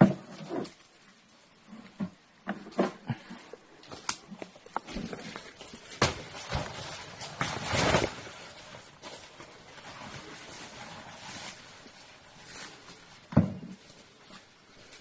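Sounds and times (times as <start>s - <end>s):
footsteps through undergrowth: 3.9s - 15.0s.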